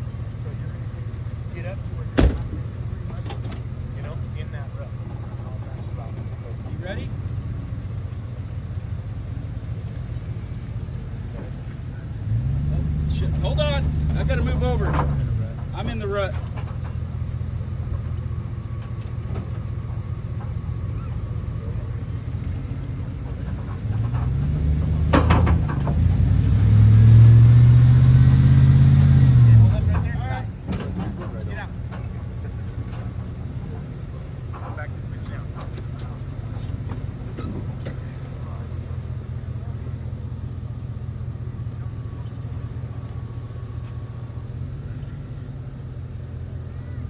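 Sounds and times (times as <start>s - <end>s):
truck engine revving: 0.0s - 47.0s
rattle of sharp knocks: 2.2s - 3.8s, 14.8s - 19.7s, 22.4s - 26.2s, 29.9s - 33.4s.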